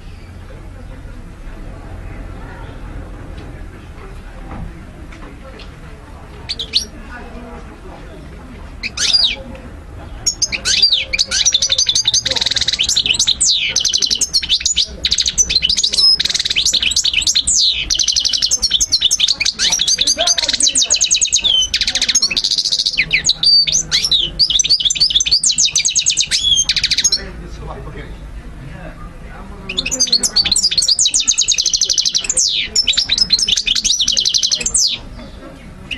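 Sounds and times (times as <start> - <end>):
finch twittering song: 6.5 - 7.0, 8.8 - 9.4, 10.1 - 27.4, 29.7 - 35.9
bird call: 10.2 - 27.2, 29.7 - 35.9.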